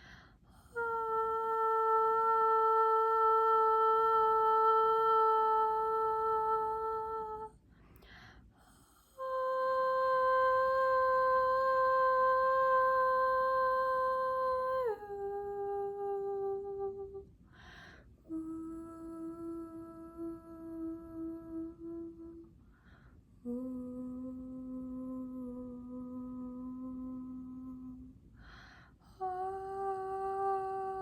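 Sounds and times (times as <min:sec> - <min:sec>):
woman breathing: 0:00.0 - 0:00.8, 0:07.6 - 0:09.2, 0:17.4 - 0:18.3, 0:22.5 - 0:23.4, 0:28.2 - 0:29.2.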